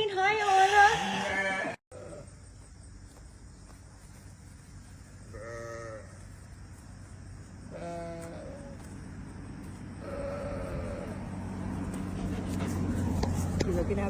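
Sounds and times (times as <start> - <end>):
sheep or goat bleating: 0.4 - 2.3, 5.3 - 6.2, 7.7 - 8.8, 10.0 - 11.2.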